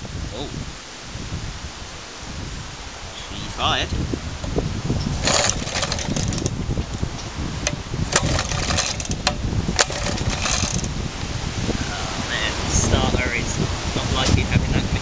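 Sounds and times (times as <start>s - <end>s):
engine running with knocks and rattling: 4.4s - 6.6s, 7.6s - 11.0s.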